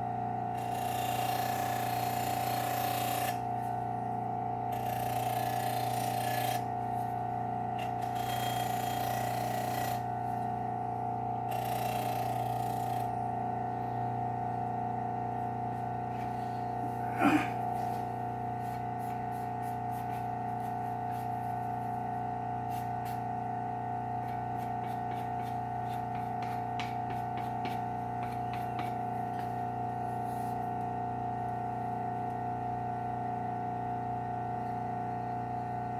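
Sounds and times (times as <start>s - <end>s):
blade grinding on abrasive belt: 0.5s - 3.4s, 4.7s - 7.1s, 7.8s - 10.1s, 11.5s - 13.2s, 24.2s - 29.6s
belt sharpener motor hum: 0.5s - 3.9s, 4.6s - 14.2s, 17.7s - 31.0s.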